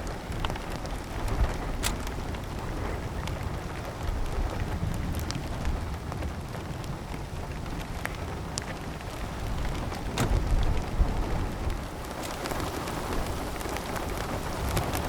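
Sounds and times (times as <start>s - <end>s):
low thunder rumble: 0.0s - 15.0s
rain hissing: 0.0s - 15.0s
raindrop hits: 0.0s - 15.0s.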